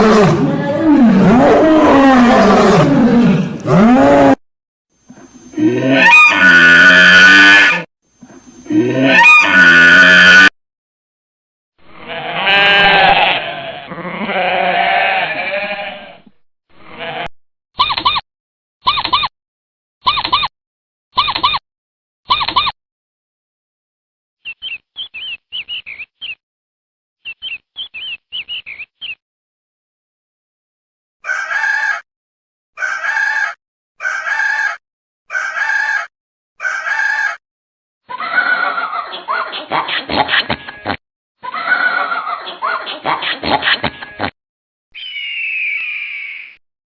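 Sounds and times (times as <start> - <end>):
animal call: 5.5 - 7.9, 8.7 - 10.5, 31.2 - 32.0, 32.8 - 37.4, 45.0 - 46.6
farm animal bleating: 11.9 - 17.3
chicken calling: 31.2 - 32.0, 32.8 - 37.4, 38.1 - 39.6, 45.0 - 46.6.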